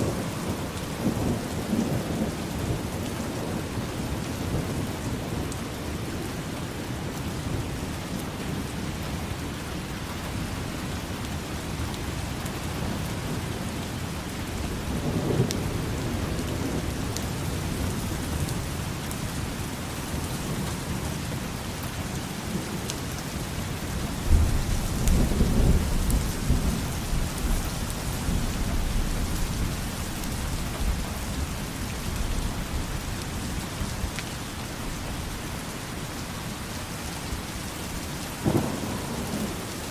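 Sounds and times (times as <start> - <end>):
low rolls of thunder: 0.0 - 7.7, 14.5 - 19.4, 24.2 - 31.0, 38.3 - 39.9
steady rain falling: 0.0 - 39.9.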